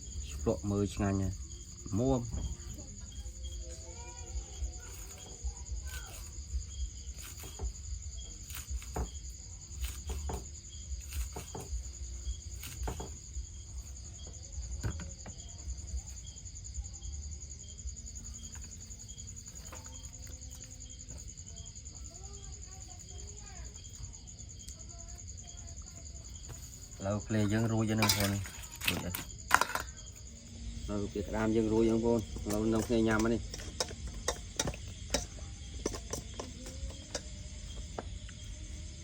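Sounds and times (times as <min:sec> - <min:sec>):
insects trilling: 0:00.0 - 0:39.0.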